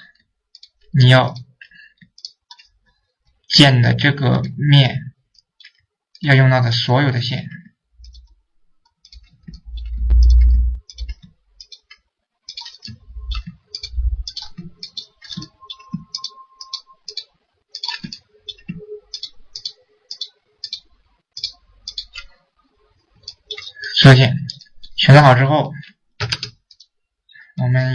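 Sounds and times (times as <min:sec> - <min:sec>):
computer mouse clicking: 0:00.5 - 0:02.8, 0:08.0 - 0:22.4, 0:23.2 - 0:23.8, 0:26.2 - 0:26.9.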